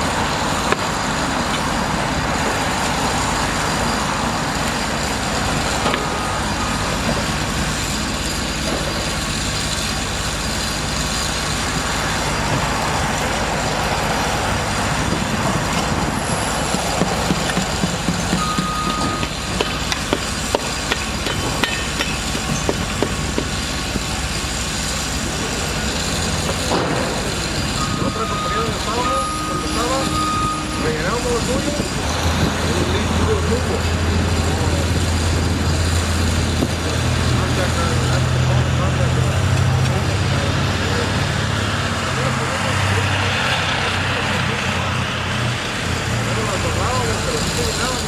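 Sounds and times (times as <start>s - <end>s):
heavy engine rumbling: 0.0s - 48.0s
sharp knocks: 16.6s - 24.1s
short high beeps: 18.4s - 19.3s, 27.8s - 31.3s.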